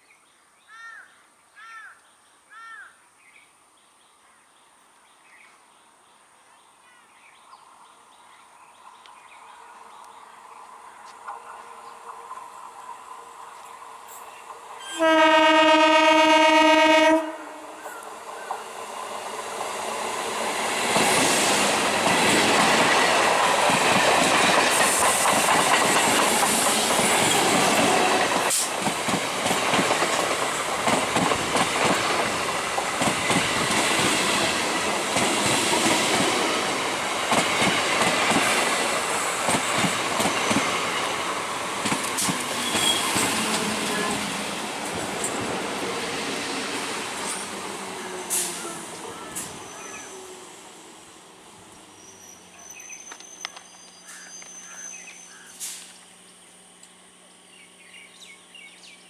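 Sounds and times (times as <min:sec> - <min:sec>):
train horn: 0:14.8 - 0:17.8
train wheels clattering over joints: 0:20.8 - 0:36.5, 0:37.2 - 0:43.8.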